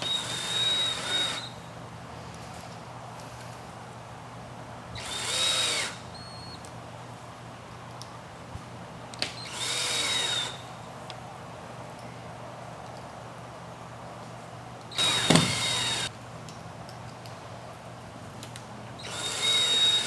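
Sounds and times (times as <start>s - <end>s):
power drill driving screws: 0.0s - 1.6s, 5.0s - 6.5s, 9.3s - 10.6s, 14.9s - 16.1s, 19.0s - 20.0s.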